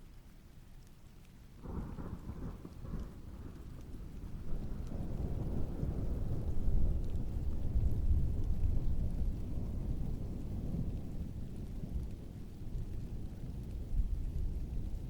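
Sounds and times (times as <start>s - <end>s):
raindrops pattering: 0.0s - 15.0s
steady rainfall: 0.0s - 15.0s
distant thunder rumbling: 1.6s - 15.0s.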